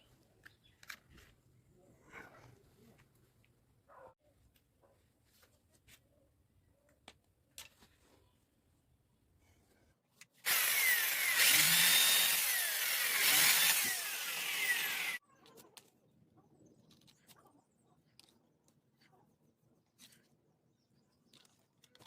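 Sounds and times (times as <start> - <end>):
power tool cutting bamboo: 10.4 - 15.2.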